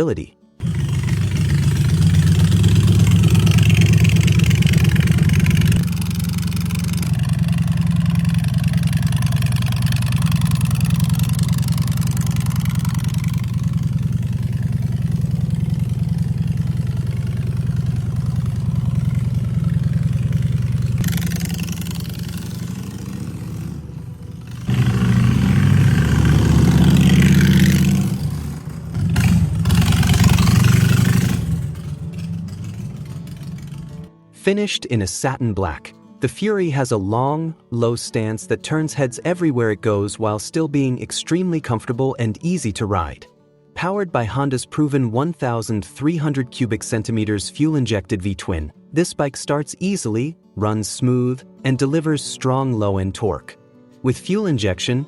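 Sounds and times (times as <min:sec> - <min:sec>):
motorcycle engine idling and revving: 0:00.6 - 0:34.1.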